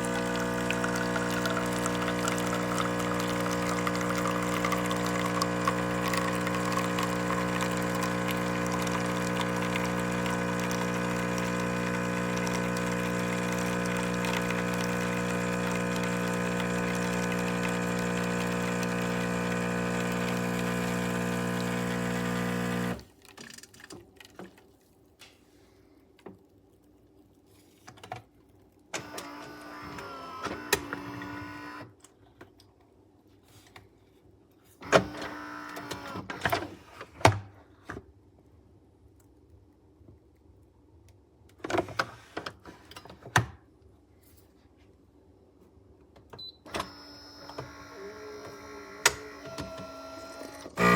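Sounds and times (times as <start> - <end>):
espresso machine pump humming: 0.0 - 23.0, 47.7 - 50.9
motor whirs with clicks: 29.0 - 31.9, 34.8 - 36.7, 46.4 - 50.9.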